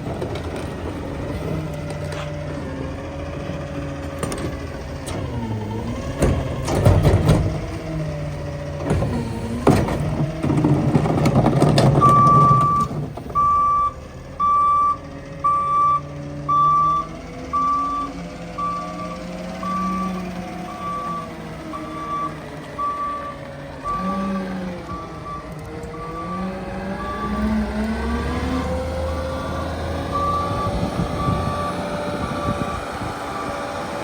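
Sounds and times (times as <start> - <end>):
truck engine running: 0.0 - 34.0
reversing alarm beeping: 12.0 - 28.3, 30.0 - 34.0.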